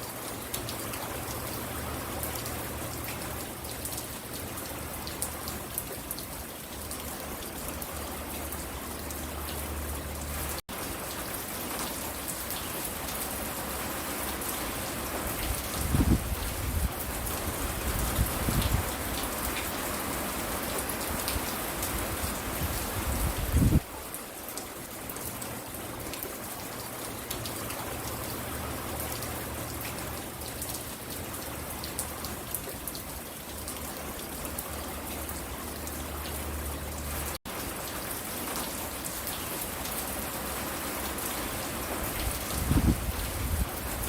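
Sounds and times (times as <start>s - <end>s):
steady rain falling: 0.0s - 44.0s.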